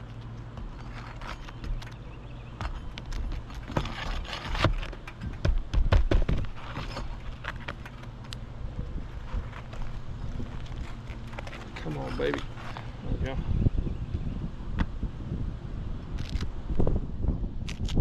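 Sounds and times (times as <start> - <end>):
hand tool scraping under shingles: 0.0 - 8.2, 9.1 - 12.9.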